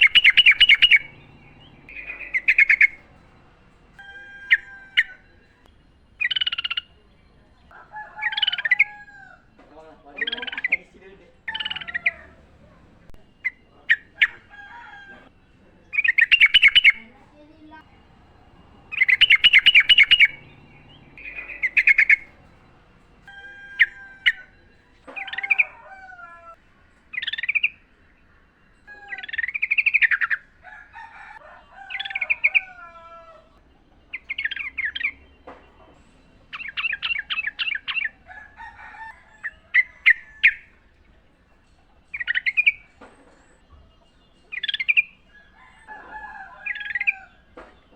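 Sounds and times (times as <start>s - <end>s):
bird rattling trills: 0.0s - 5.6s, 15.9s - 25.8s
bulbuls chattering and whistling: 0.0s - 47.9s.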